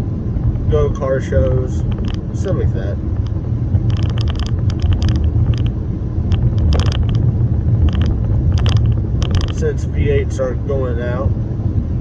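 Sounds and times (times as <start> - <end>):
road and engine rumble in car: 0.0 - 12.0
light clicks or rattles: 1.8 - 9.8.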